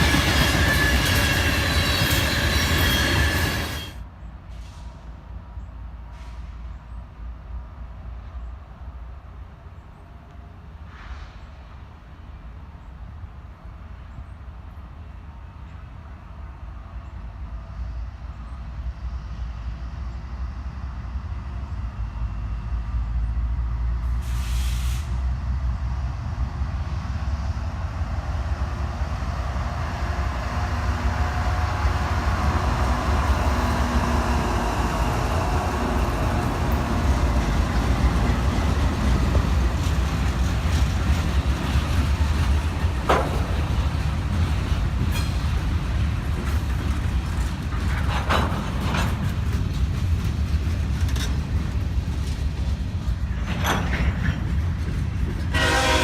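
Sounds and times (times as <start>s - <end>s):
wheel and rail noise: 0.0s - 7.1s, 8.0s - 56.0s
diesel locomotive rumble: 0.0s - 56.0s.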